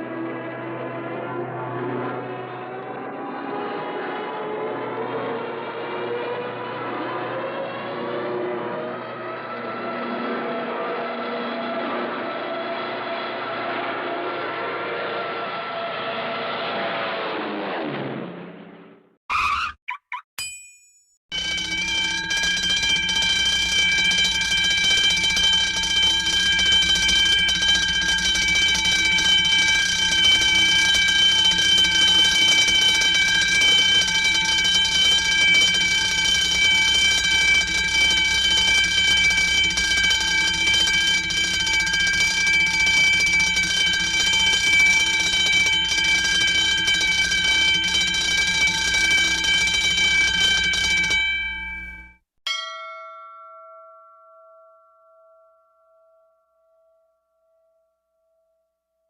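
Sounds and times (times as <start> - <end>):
alarm-like ringing tone: 20.4 - 52.2.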